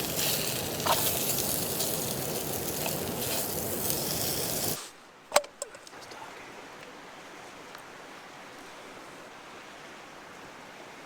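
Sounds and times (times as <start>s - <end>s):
running water: 0.0s - 4.8s.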